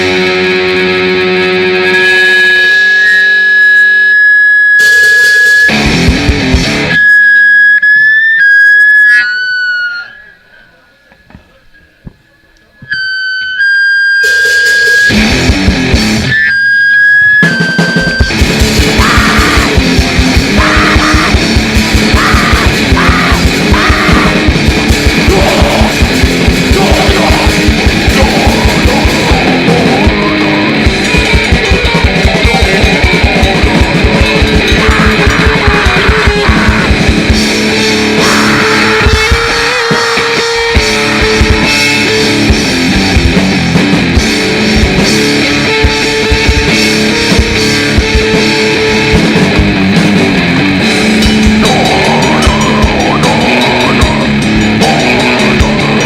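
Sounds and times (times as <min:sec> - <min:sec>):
distorted electric guitar: 0:00.0 - 0:56.0
fast drumming on drum kit: 0:05.7 - 0:06.9, 0:14.6 - 0:16.3, 0:17.8 - 0:56.0.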